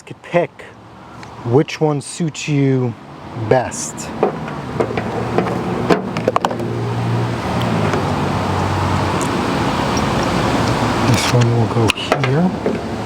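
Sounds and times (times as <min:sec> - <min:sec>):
wash of noise: 0:03.0 - 0:11.7.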